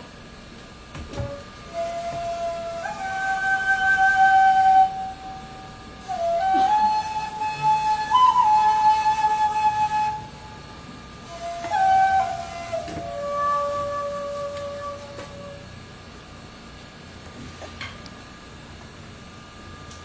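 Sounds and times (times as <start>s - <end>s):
bamboo flute long notes: 1.1s - 16.0s.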